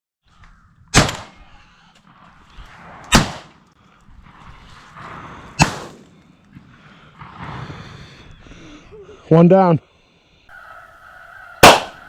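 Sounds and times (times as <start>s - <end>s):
shotgun shots: 0.9s - 1.4s, 3.1s - 3.5s, 5.6s - 6.0s, 11.6s - 12.0s.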